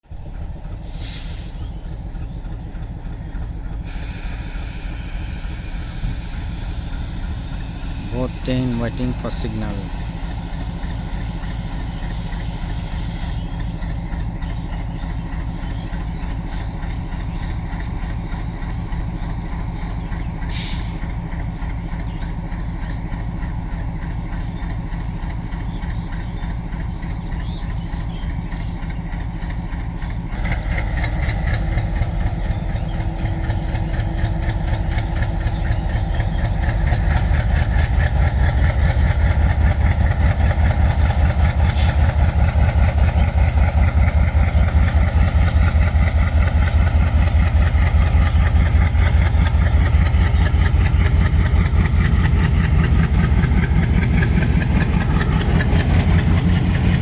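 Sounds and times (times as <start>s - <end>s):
diesel locomotive engine idling: 0.0s - 57.0s
short sharp hiss: 0.9s - 1.6s, 20.5s - 21.0s.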